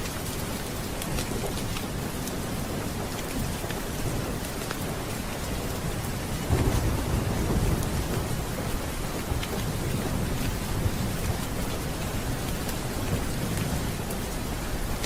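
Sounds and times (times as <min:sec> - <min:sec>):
steady rain: 0:00.0 - 0:15.0
low rumble of thunder: 0:05.6 - 0:15.0.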